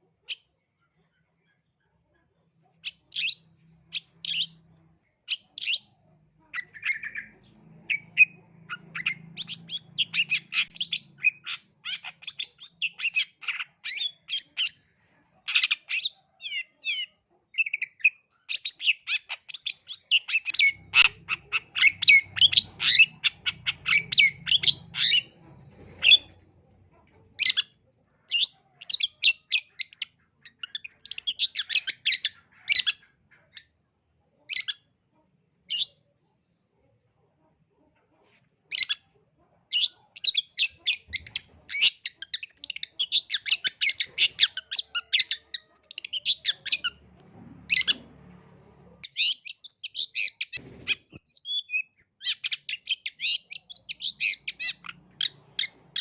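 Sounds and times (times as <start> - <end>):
bird singing fast chattering notes: 6.6 - 14.9, 15.5 - 26.4.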